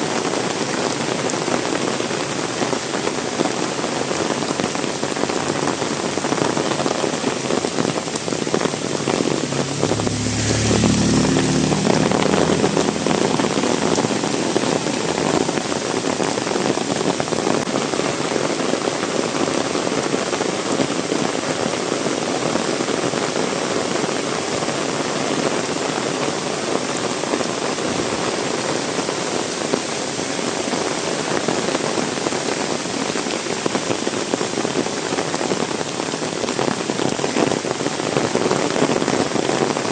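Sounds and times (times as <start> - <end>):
heavy rain falling: 0.0 - 39.9
vehicle engine: 8.0 - 16.1.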